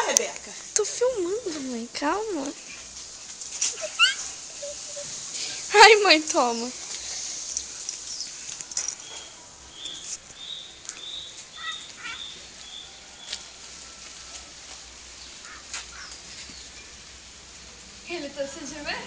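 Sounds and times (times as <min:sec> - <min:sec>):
faint clicks and rustles: 0:00.1 - 0:16.7
small bird chirping: 0:06.6 - 0:13.4.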